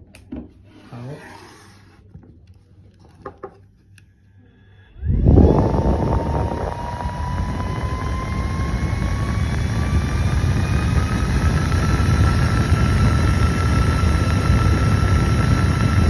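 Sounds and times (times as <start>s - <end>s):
mini fan motor whine: 3.9s - 16.0s.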